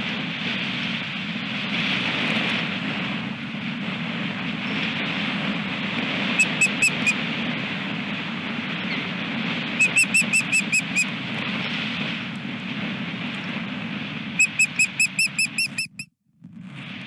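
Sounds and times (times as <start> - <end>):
wind on microphone: 0.0 - 17.0
osprey whistled chirps: 6.4 - 7.2, 9.8 - 11.1, 14.4 - 16.1.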